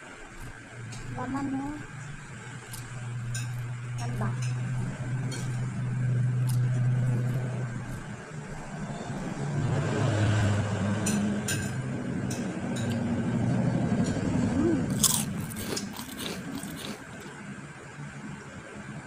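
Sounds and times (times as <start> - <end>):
chewing and lip-smacking: 0.2 - 1.2, 1.8 - 8.7, 14.9 - 17.4.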